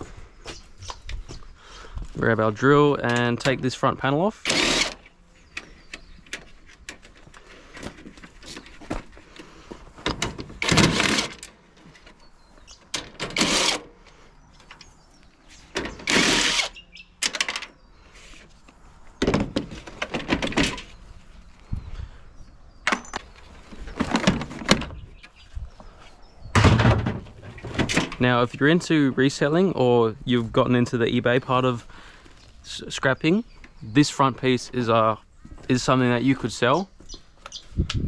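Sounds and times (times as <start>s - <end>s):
power drill running: 4.4s - 5.0s, 13.3s - 13.9s, 16.0s - 16.8s.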